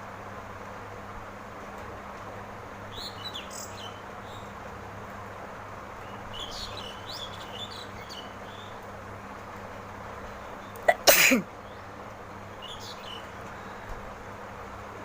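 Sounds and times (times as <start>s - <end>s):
birds chirping: 6.0s - 8.9s, 11.6s - 14.0s.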